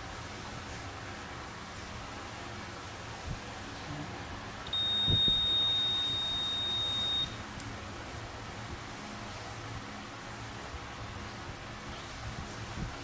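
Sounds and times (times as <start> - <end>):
multimeter continuity beep: 4.7 - 7.4.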